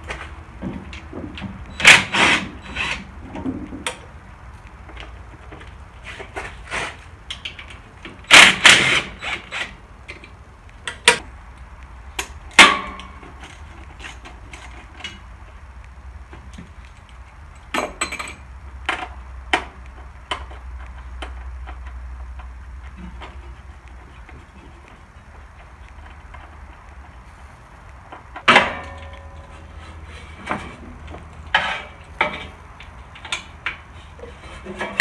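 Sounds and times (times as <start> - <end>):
hand tools and metal parts clanking: 17.5 - 27.4, 28.0 - 35.0.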